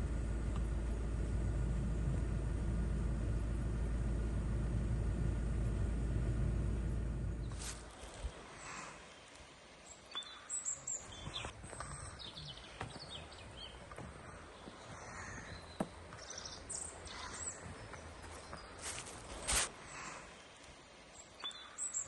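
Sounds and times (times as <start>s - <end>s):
faint outdoor background hiss: 0.0s - 22.0s
birds chirping and singing: 9.9s - 19.6s.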